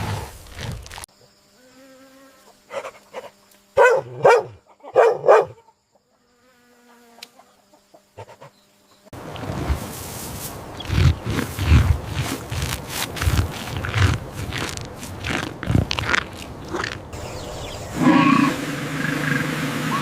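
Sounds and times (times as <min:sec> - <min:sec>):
animal calling: 0:10.8 - 0:20.0.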